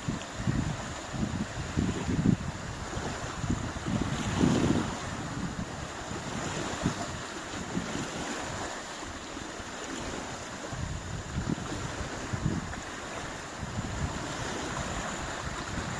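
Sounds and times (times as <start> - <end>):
lake waves washing on shore: 0.0 - 15.9
wind buffeting microphone: 0.0 - 15.9.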